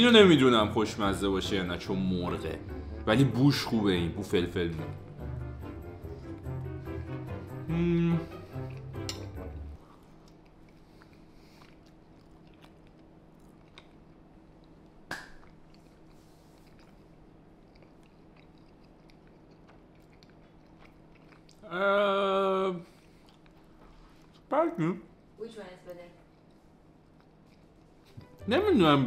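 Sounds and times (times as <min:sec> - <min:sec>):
person chewing food: 0:04.8 - 0:21.7, 0:22.8 - 0:24.5, 0:26.3 - 0:28.4.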